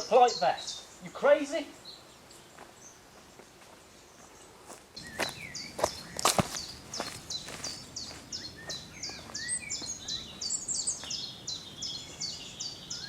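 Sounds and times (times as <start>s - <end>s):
bird whistled chirps: 7.3s - 13.0s.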